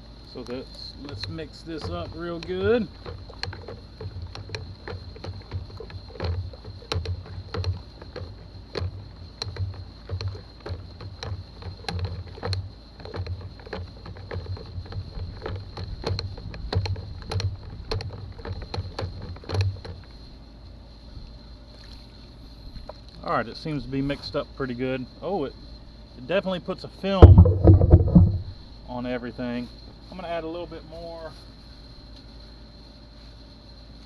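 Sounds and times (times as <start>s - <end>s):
liquid sloshing in bucket: 1.2s - 20.0s, 27.2s - 28.7s
irregular knocks: 1.7s - 20.0s, 27.2s - 28.7s.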